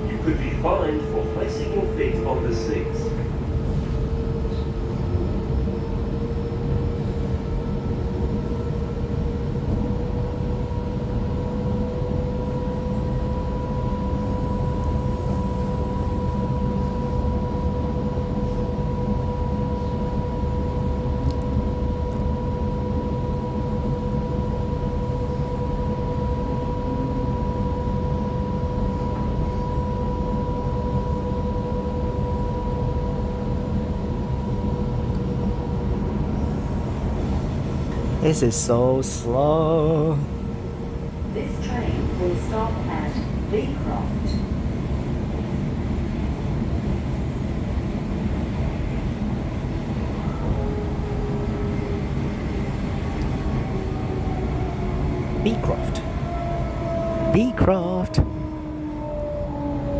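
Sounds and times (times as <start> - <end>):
train wheels rumbling on track: 0.0 - 27.3, 30.2 - 57.5
traction motor whine: 50.0 - 59.9.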